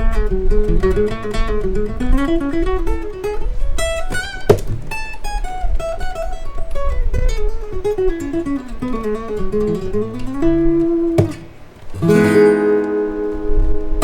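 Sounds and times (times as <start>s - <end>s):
acoustic guitar plucked notes: 0.0s - 6.7s, 7.5s - 14.0s
percussive strike on guitar: 4.1s - 5.1s, 11.2s - 11.6s.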